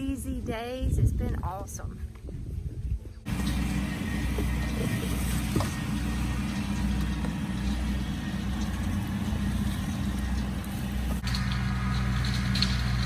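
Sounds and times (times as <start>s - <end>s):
small vehicle engine running: 3.3s - 13.0s.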